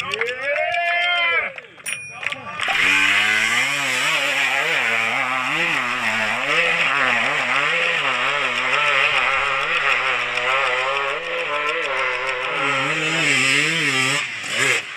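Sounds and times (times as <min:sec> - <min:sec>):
dirt bike engine revving: 0:02.4 - 0:14.9.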